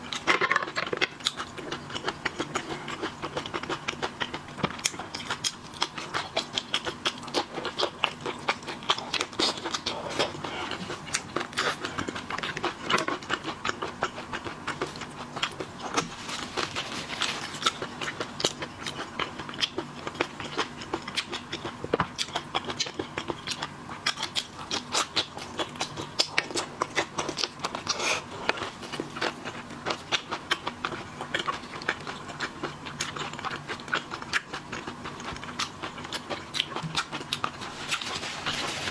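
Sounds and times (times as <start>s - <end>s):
crunching and chewing seafood: 0.0s - 38.9s
faint steady hum: 0.0s - 38.9s.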